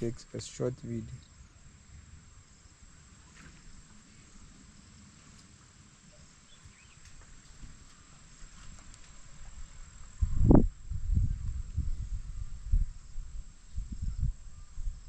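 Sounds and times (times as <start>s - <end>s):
faint clicks: 5.3s - 5.7s, 8.6s - 10.2s.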